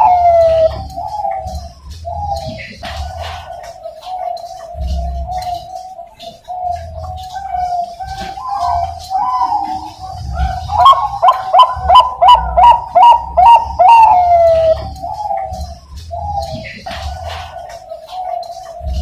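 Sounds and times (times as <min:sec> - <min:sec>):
soft continuous cooing: 0:00.0 - 0:19.0
dove quick coo notes: 0:06.5 - 0:15.7.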